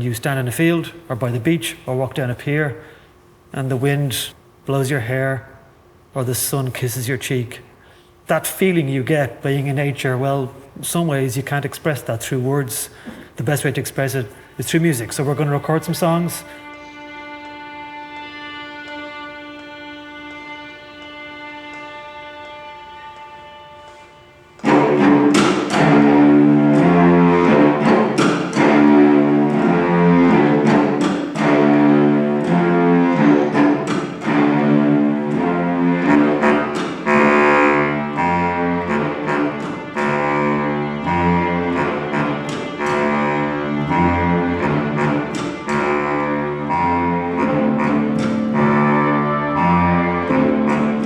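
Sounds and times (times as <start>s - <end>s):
orchestral strings music: 14.8s - 51.0s.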